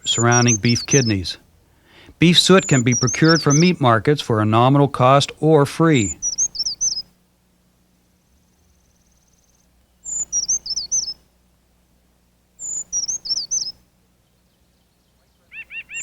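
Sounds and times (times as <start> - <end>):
rapid repeated bird chirps: 0.0 - 1.4, 2.2 - 4.0, 5.9 - 7.2, 8.2 - 11.4, 12.6 - 16.0
high thin birdsong: 0.0 - 11.6, 12.6 - 16.0.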